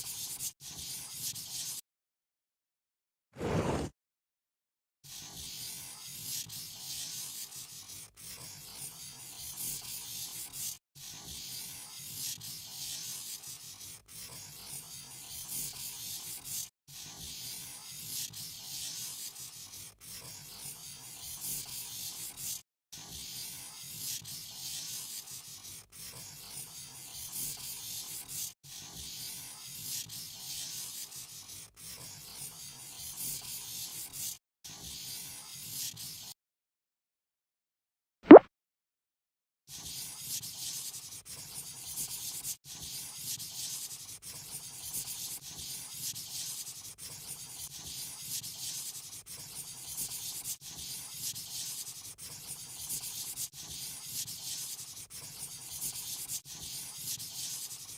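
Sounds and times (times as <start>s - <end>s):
pen scratching on paper: 0.0s - 1.8s, 3.4s - 3.9s, 5.1s - 36.4s, 39.7s - 57.9s.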